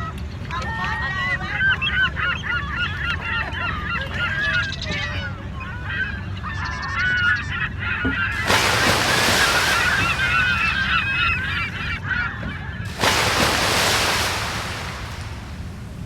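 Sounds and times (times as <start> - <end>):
boat engine hum: 8.0 - 12.0, 12.9 - 16.0
waterfowl honking: 8.3 - 11.8
loud rushing noise: 12.9 - 16.0.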